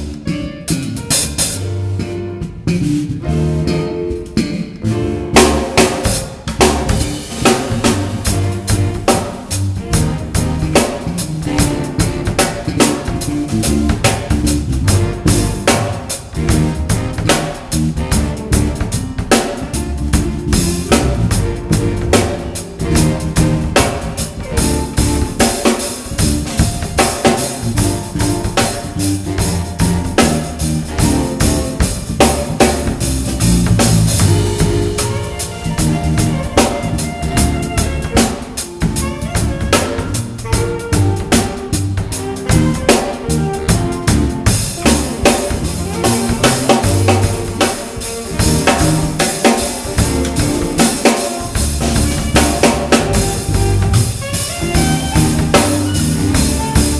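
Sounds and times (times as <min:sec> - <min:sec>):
bass and melody notes: 0:00.0 - 0:56.9
drum kit beat: 0:00.0 - 0:56.9.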